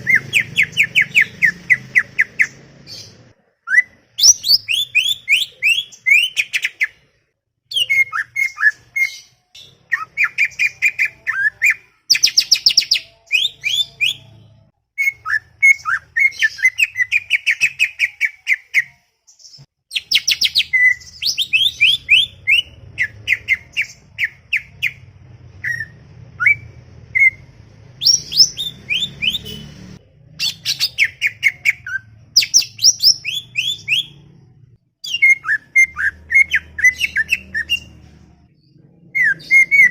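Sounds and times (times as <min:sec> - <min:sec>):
bird singing chattering song: 0:00.0 - 0:07.0, 0:07.7 - 0:25.0, 0:28.0 - 0:34.3, 0:35.0 - 0:39.9.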